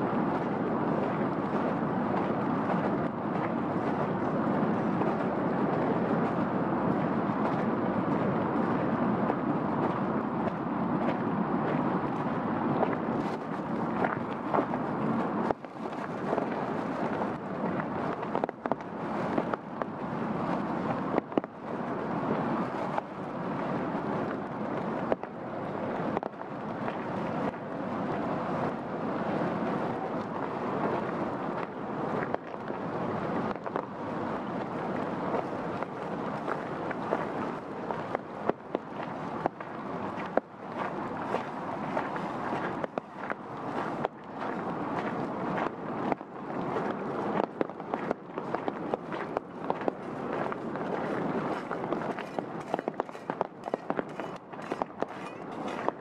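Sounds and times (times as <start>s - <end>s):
sharp taps of raindrops: 17.7s - 19.9s, 21.1s - 21.6s, 26.1s - 26.4s.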